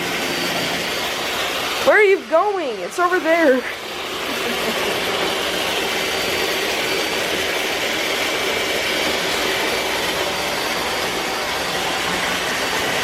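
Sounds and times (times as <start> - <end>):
robot vacuum motor whooshing: 2.9 - 13.0.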